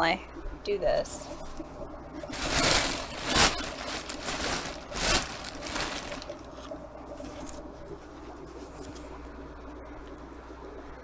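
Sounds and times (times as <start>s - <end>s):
faint steady hum: 0.0s - 11.0s
rustling and handling noises: 2.2s - 7.7s.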